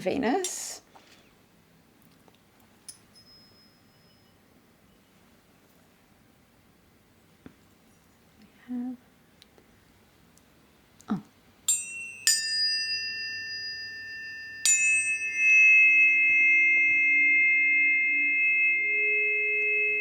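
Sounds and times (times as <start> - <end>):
tuning forks ringing: 2.9 - 4.5, 11.7 - 20.0
lower steady tones: 11.7 - 20.0.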